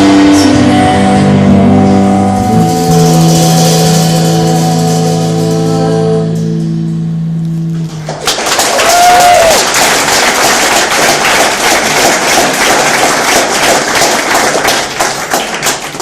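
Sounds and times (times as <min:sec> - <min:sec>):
audience applause and cheering: 0:08.0 - 0:16.0.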